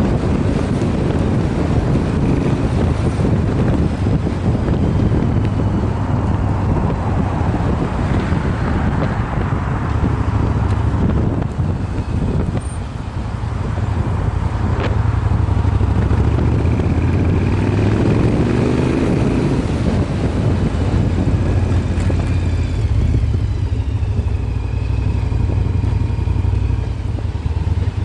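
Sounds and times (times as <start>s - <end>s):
motorcycle exhaust rumble: 0.0s - 28.0s
wind noise on microphone: 0.0s - 28.0s.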